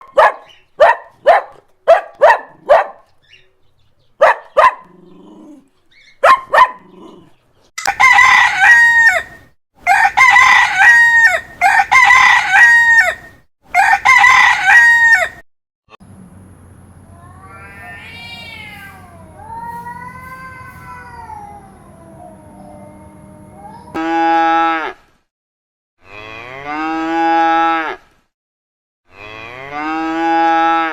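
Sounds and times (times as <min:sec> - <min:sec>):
rooster crowing: 0:07.8 - 0:15.4.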